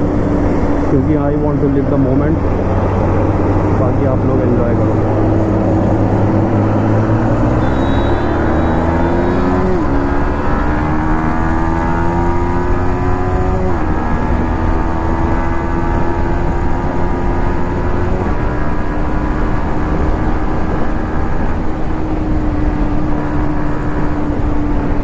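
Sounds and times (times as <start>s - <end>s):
motorcycle engine accelerating: 0.0s - 25.0s
wind and road noise: 0.0s - 25.0s.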